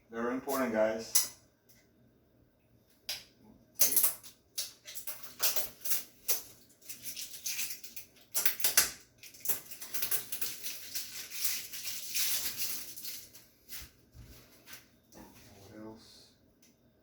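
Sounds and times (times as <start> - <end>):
tape and plastic film peeling: 4.9 - 13.4.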